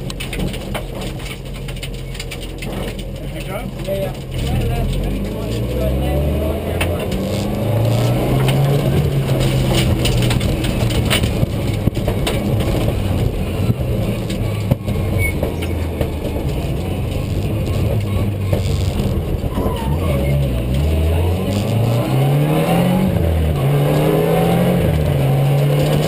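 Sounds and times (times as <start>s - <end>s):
car body clicks and rattles: 0.0s - 5.8s, 6.7s - 19.6s
rally car engine running hard: 0.0s - 26.0s.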